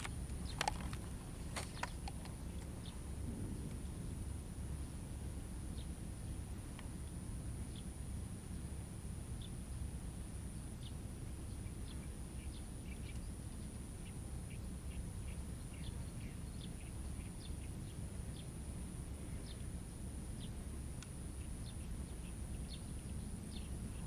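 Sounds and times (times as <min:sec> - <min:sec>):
birds chirping: 0:00.0 - 0:04.1, 0:10.6 - 0:19.7, 0:20.3 - 0:24.0
steady low rumble: 0:00.0 - 0:24.0.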